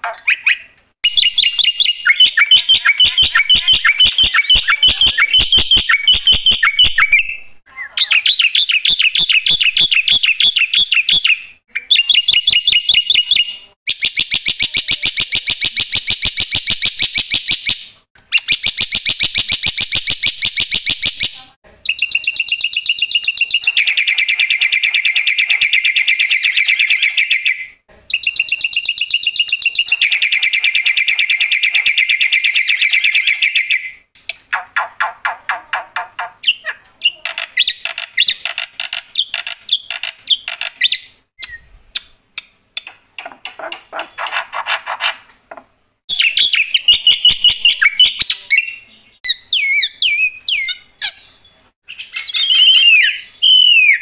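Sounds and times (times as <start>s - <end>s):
bird singing fast repeated notes: 0.3s - 17.6s, 46.1s - 54.0s.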